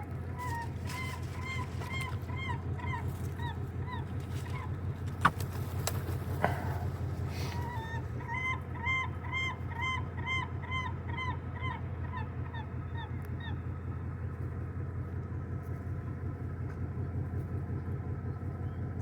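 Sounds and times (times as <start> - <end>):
gull calling: 0.0 - 5.4, 6.2 - 13.9
steady low rumble: 0.0 - 19.0.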